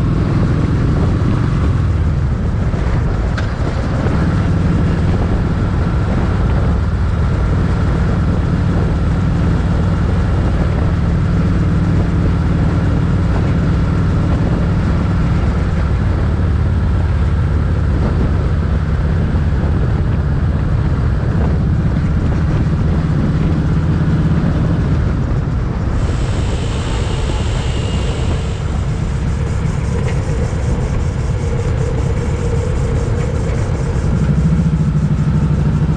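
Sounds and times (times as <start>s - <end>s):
motorcycle engine running: 0.0s - 35.9s
wind and road noise: 0.0s - 35.9s
brief higher hiss: 26.0s - 32.1s.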